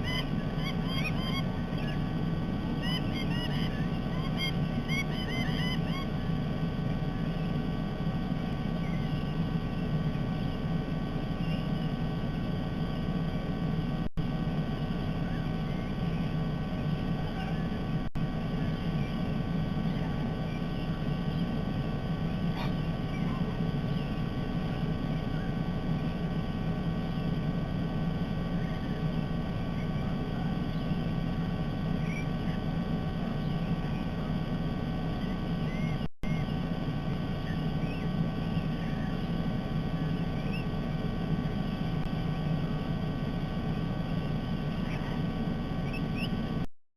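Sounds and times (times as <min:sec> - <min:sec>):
faint bird chirps: 0:00.0 - 0:13.6, 0:14.3 - 0:46.7
microphone drone and hiss: 0:00.0 - 0:46.7.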